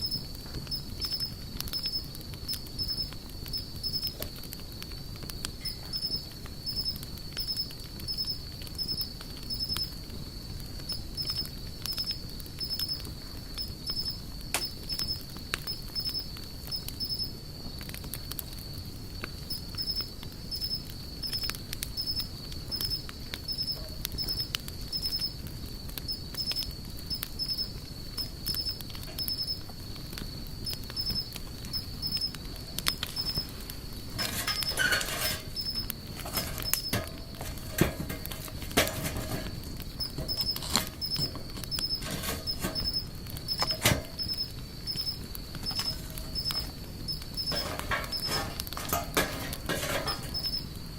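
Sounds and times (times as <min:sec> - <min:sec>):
high-pitched rhythmic chirping: 0:00.0 - 0:02.1, 0:02.8 - 0:04.1, 0:05.6 - 0:09.9, 0:13.9 - 0:17.3, 0:19.5 - 0:25.3, 0:26.1 - 0:26.7, 0:27.4 - 0:29.6, 0:31.0 - 0:32.3, 0:33.2 - 0:33.5, 0:35.5 - 0:35.9, 0:40.0 - 0:48.4, 0:50.3 - 0:50.7
wood fire crackling and popping: 0:00.0 - 0:50.9.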